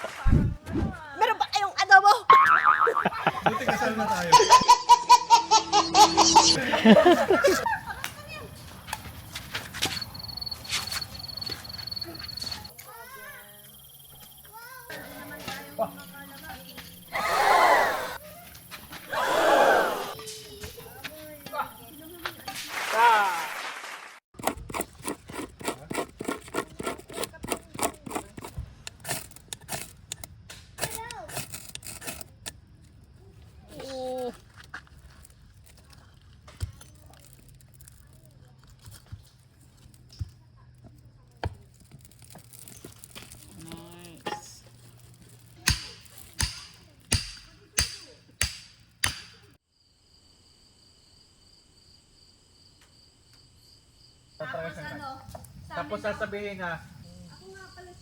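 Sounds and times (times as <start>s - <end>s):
insects trilling: 2.0s - 4.9s, 6.4s - 22.8s, 24.6s - 47.8s, 49.4s - 58.0s
quick rubbing strokes: 24.4s - 30.2s.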